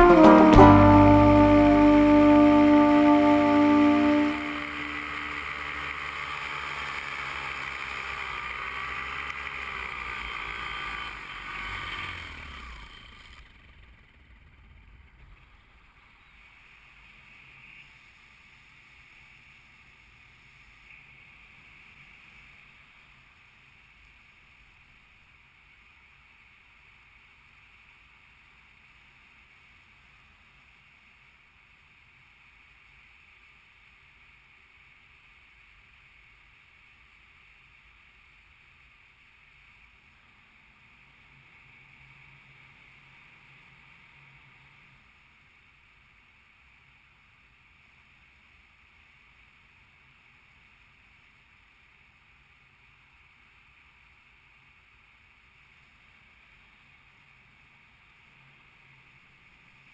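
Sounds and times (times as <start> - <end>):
small aircraft engine running: 0.0 - 24.2.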